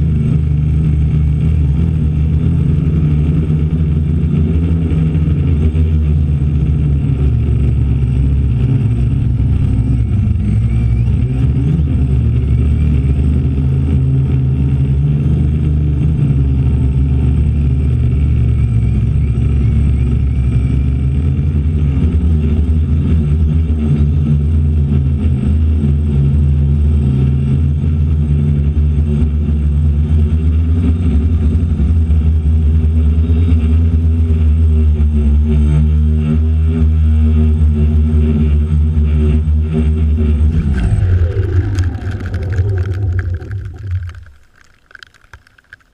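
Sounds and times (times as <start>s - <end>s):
drone motors and propellers humming: 0.0s - 45.9s
wind buffeting microphone: 40.2s - 45.9s.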